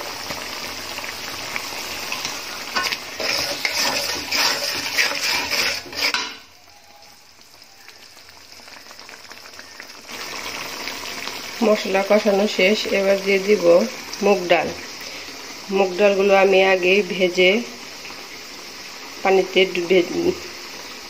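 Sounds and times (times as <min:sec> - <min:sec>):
spices sizzling in oil: 0:00.0 - 0:21.0
spatula scraping pan: 0:02.1 - 0:06.5.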